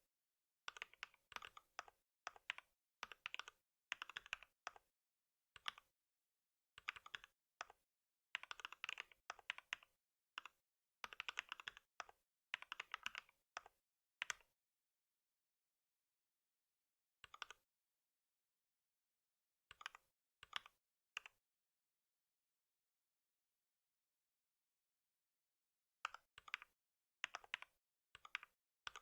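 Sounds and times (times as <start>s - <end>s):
typing on a computer keyboard: 0.7s - 4.9s, 5.6s - 5.9s, 6.8s - 7.8s, 8.4s - 14.5s, 26.1s - 29.0s.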